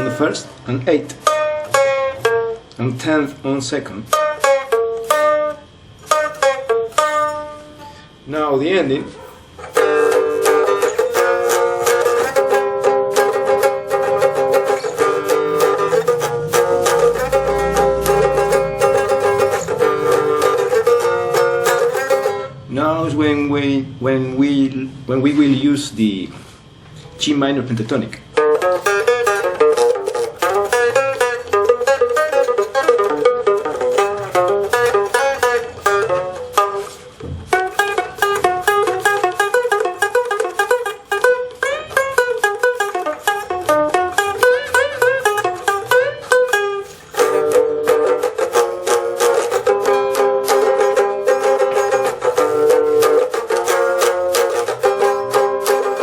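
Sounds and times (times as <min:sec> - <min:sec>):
box guitar solo: 0:00.0 - 0:25.4, 0:27.9 - 0:56.0.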